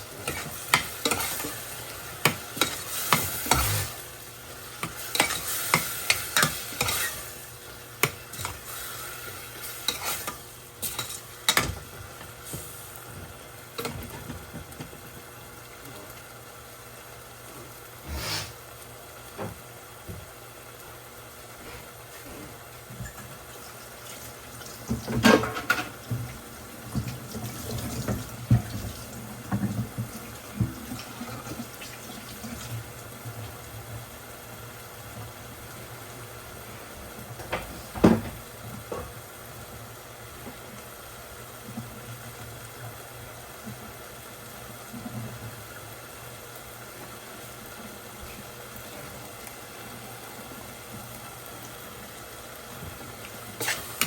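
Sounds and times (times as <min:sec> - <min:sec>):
tap running into a sink: 0:37.4 - 0:38.4.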